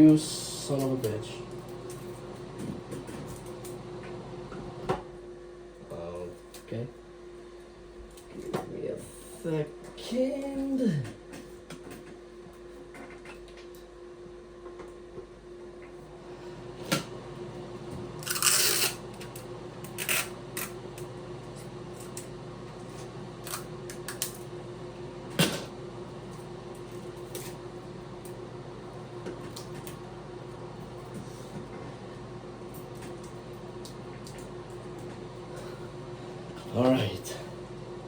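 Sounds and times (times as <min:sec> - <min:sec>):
exhaust fan humming: 0:00.0 - 0:12.8, 0:13.4 - 0:38.0.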